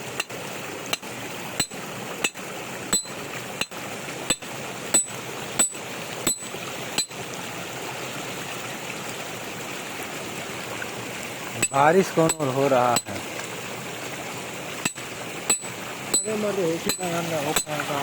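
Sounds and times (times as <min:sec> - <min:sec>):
water running: 0:00.0 - 0:18.0
hammer striking metal: 0:01.6 - 0:07.2, 0:11.6 - 0:13.1, 0:14.8 - 0:17.8.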